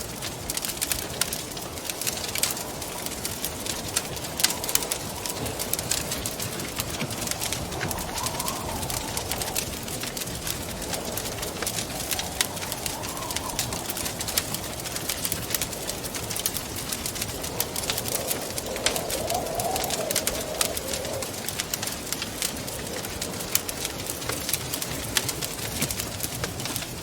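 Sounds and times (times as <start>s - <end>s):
moaning wind: 0.0s - 27.0s
wood fire crackling and popping: 0.0s - 27.0s.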